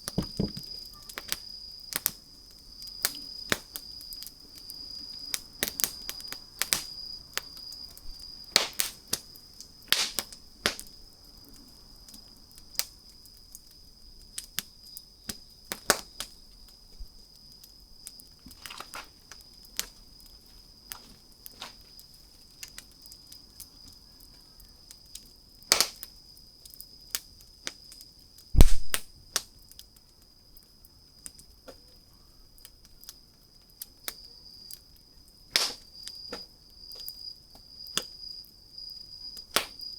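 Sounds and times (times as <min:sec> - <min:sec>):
wood fire crackling and popping: 0:00.0 - 0:32.0, 0:32.6 - 0:39.9
heavy thud: 0:00.2 - 0:00.7, 0:28.6 - 0:29.0.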